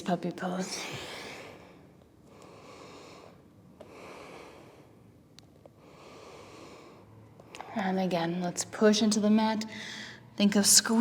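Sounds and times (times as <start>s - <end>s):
woman breathing: 0.7s - 5.2s, 5.8s - 7.2s, 9.7s - 10.4s.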